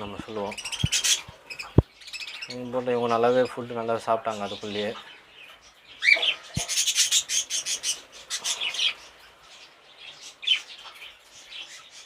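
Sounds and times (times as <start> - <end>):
cockatiels chirping and calling: 0.0 - 12.0.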